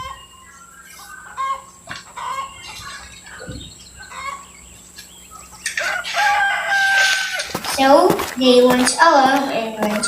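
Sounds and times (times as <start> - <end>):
chicken clucking: 1.0 - 4.6.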